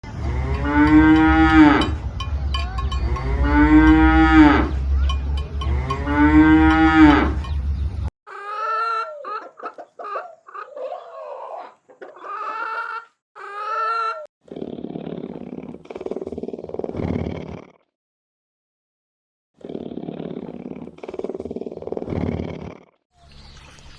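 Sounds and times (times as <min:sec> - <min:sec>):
cow mooing: 0:00.1 - 0:07.5
chicken calling: 0:08.3 - 0:14.3.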